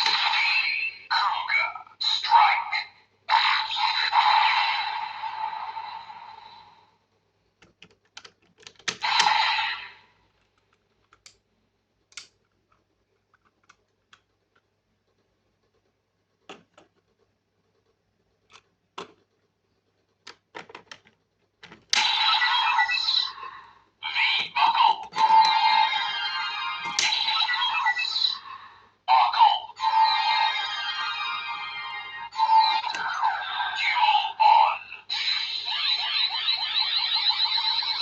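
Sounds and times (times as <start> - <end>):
toy electronic sound effects: 0.0 - 5.4, 9.0 - 10.0, 22.0 - 38.0
plastic toy parts clicking: 12.1 - 14.7.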